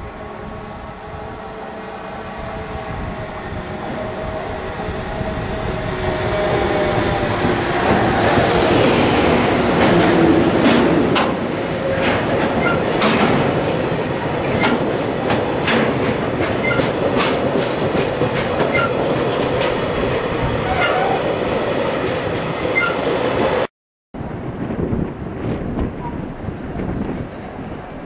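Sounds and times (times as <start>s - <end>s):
train wheels clicking over rail joints: 9.3s - 21.2s.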